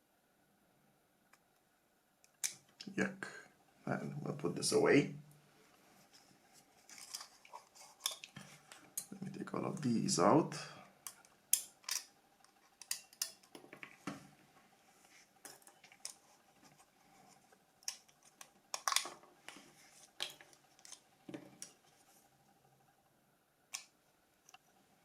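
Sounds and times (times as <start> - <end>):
small phone parts clicking: 11.1 - 12.1, 12.8 - 13.6, 17.8 - 19.2.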